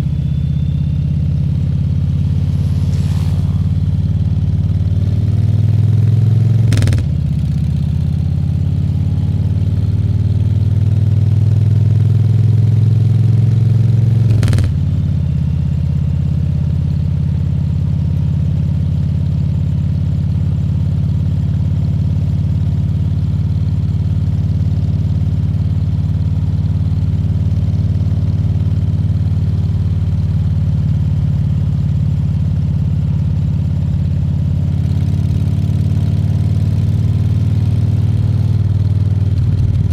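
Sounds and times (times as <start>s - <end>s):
motorcycle engine accelerating: 0.0s - 15.3s, 34.5s - 39.9s.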